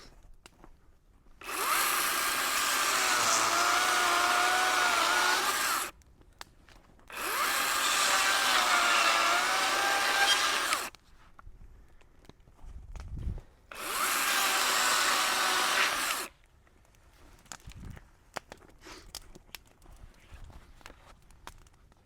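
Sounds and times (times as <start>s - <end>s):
electric power tool motor: 1.4s - 5.9s, 7.1s - 10.9s, 13.7s - 16.3s.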